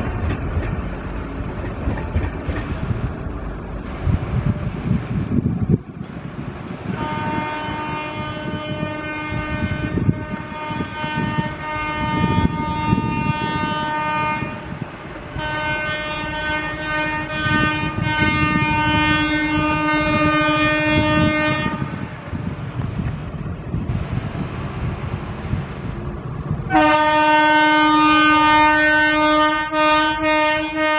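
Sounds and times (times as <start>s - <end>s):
train wheels rumbling on track: 0.0s - 30.9s
locomotive horn blasts: 6.9s - 14.8s, 15.4s - 22.2s, 26.7s - 30.9s.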